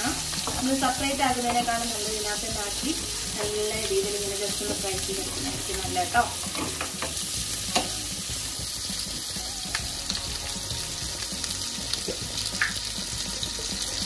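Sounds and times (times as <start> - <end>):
vegetables sizzling in a pan: 0.0 - 14.0
wooden spoon knocking on pan: 1.4 - 1.9.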